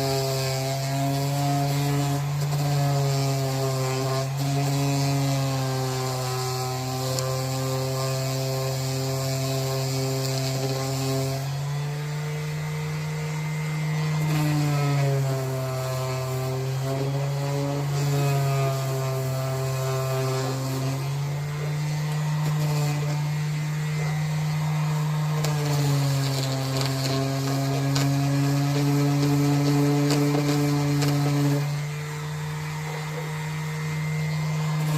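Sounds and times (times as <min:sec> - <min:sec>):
handheld power tool running: 0:00.0 - 0:34.9.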